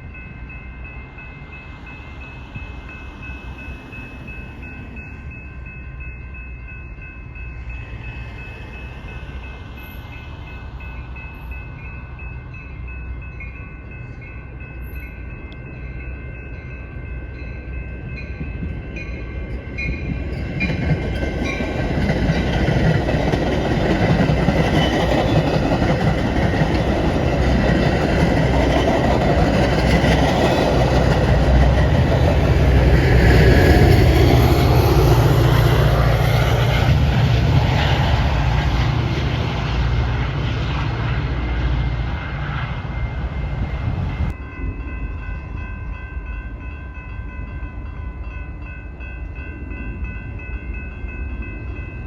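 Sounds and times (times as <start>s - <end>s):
train rumble and wheel clatter: 0.0s - 52.0s.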